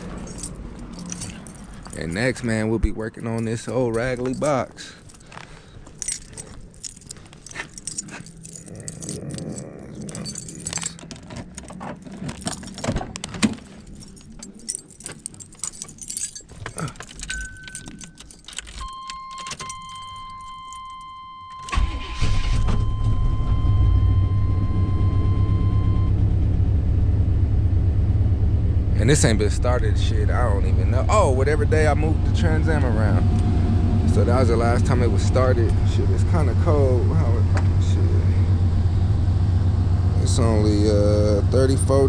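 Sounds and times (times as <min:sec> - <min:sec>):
keys jangling: 0:00.0 - 0:02.6, 0:03.2 - 0:22.4
car engine cranking and idling: 0:00.0 - 0:42.0
car warning chime: 0:17.3 - 0:26.2.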